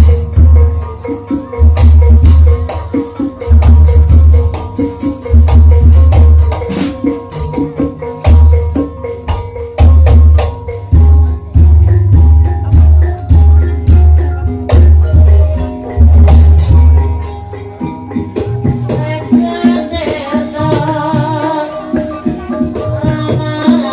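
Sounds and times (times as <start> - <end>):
drum and rattling percussion: 0.0 - 23.9
gamelan music: 0.0 - 23.9.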